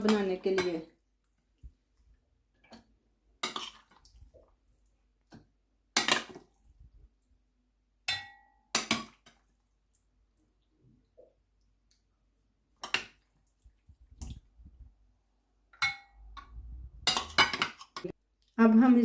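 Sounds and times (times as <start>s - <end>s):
dishes and utensils clinking: 15.8s - 18.1s.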